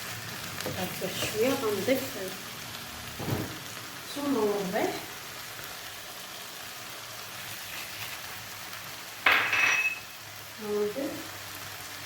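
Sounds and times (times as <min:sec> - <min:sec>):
vegetables sizzling in a frying pan: 0:00.0 - 0:12.0
ringing scrape in pan: 0:09.3 - 0:10.1.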